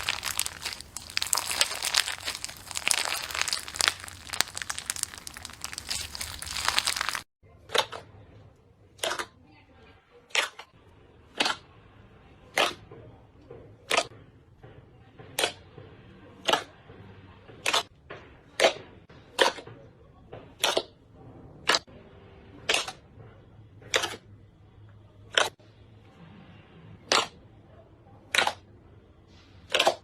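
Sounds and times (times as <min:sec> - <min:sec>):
slime squished by hand popping: 0:00.0 - 0:07.2.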